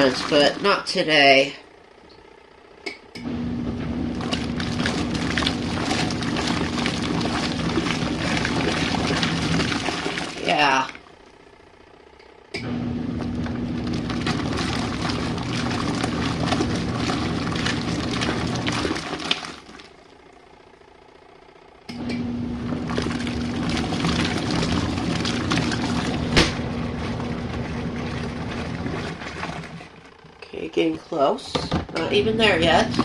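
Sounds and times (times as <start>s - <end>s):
water sloshing: 0.0s - 1.4s, 3.7s - 11.2s, 13.2s - 20.0s, 22.6s - 30.9s, 31.6s - 33.0s
washing machine motor running: 0.0s - 33.0s.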